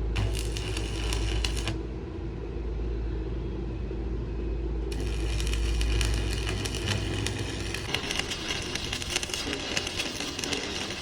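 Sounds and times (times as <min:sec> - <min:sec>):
dense crackling noise: 0:00.0 - 0:01.9, 0:04.9 - 0:11.0
low engine rumble: 0:00.0 - 0:10.9.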